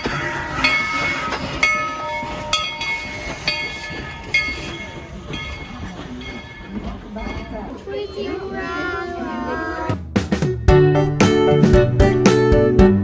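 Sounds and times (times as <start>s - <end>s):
steam locomotive bell ringing: 0.0s - 7.9s.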